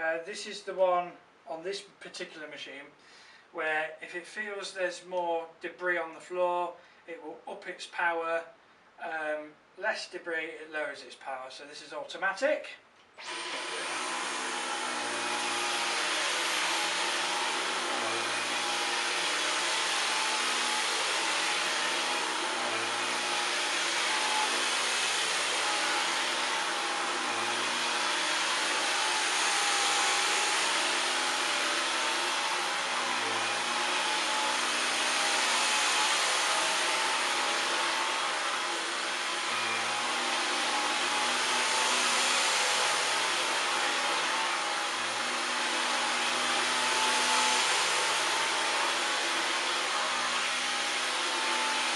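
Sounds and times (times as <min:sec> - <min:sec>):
cordless vacuum running: 0:13.2 - 0:51.9.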